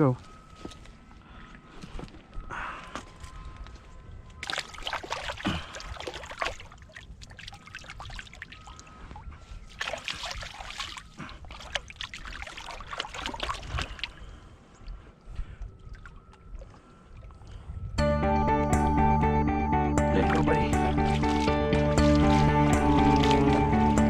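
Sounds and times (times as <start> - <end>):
river water splashing: 4.4 - 14.7, 20.2 - 24.0.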